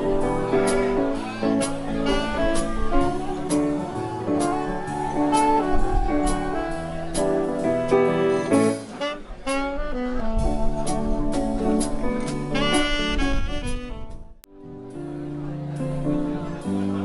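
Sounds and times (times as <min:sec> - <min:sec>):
saxophone melody: 0:00.0 - 0:11.6, 0:12.4 - 0:14.4
piano chords: 0:00.0 - 0:17.0
wind rumble on microphone: 0:04.8 - 0:07.2, 0:09.2 - 0:14.4.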